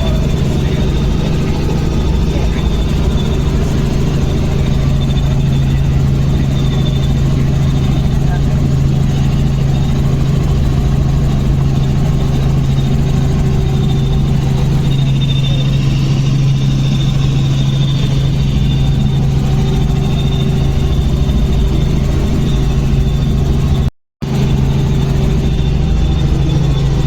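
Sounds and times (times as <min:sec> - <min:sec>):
helicopter engine and rotors drone: 0:00.0 - 0:27.0.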